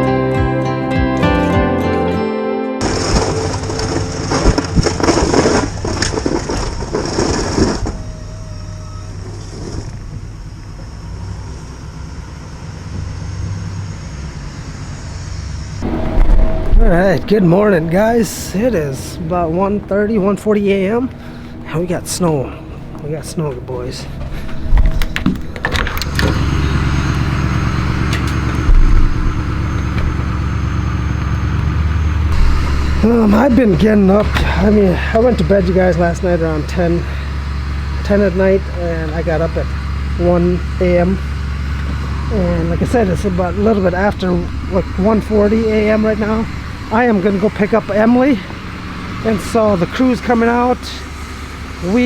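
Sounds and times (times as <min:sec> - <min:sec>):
loud crunching and crackling: 0:02.8 - 0:08.6, 0:15.8 - 0:52.0
engine hum: 0:02.8 - 0:52.0
low thump: 0:28.6 - 0:30.4, 0:32.3 - 0:33.1.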